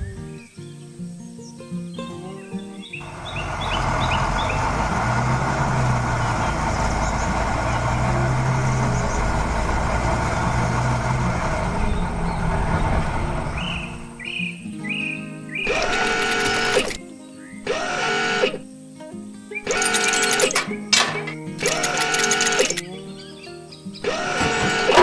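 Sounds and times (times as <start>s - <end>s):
birds chirping: 0.0s - 25.0s
heavy engine humming: 3.0s - 14.4s, 15.7s - 17.0s, 17.7s - 18.6s, 19.7s - 22.9s, 24.0s - 25.0s.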